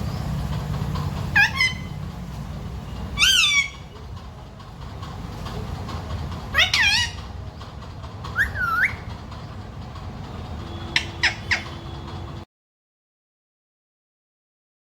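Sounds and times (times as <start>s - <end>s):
parrot calling: 1.0s - 2.1s, 3.1s - 4.0s, 6.4s - 7.4s, 8.3s - 9.1s, 10.7s - 12.1s.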